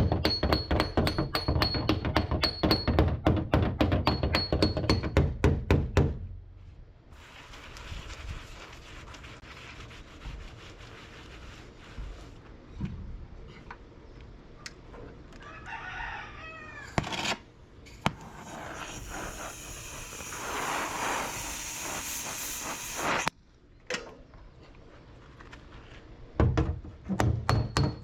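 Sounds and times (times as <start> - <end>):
rooster crowing: 15.4 - 17.0
loud steady hiss: 18.1 - 23.3.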